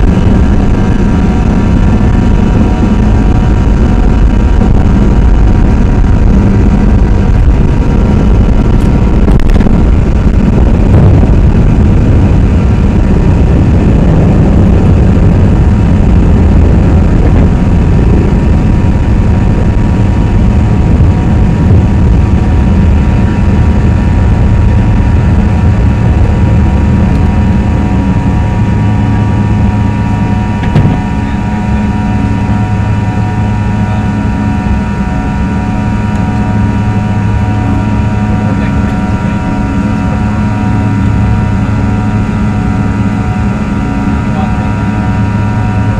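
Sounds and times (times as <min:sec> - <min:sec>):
high whining fan tones: 0:00.0 - 0:45.9
jet engines rumbling: 0:00.0 - 0:45.9
short knock: 0:30.6 - 0:31.1.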